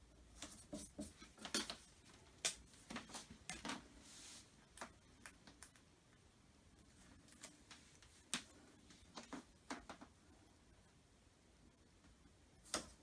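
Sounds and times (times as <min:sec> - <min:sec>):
soft rustle: 0:00.3 - 0:04.8, 0:06.8 - 0:10.1.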